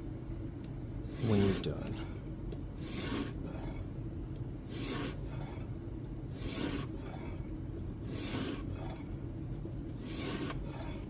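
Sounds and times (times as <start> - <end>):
sharpening stone scraping knife blade: 4.7 - 5.2, 10.0 - 10.6.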